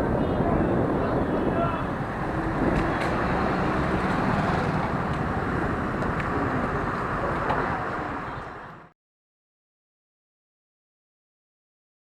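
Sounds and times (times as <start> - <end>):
road noise: 0.0 - 9.0
motorcycle engine: 2.0 - 8.4.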